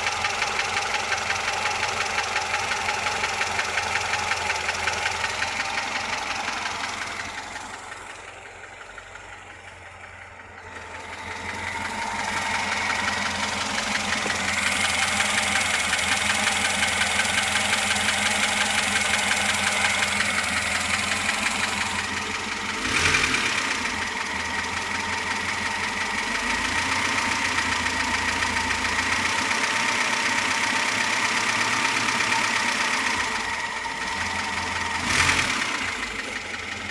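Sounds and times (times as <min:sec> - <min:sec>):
car engine idling with knock: 0:00.0 - 0:36.9.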